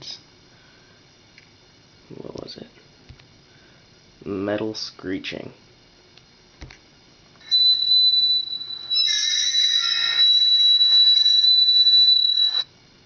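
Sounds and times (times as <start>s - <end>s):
metal screeching tone: 7.4s - 12.6s.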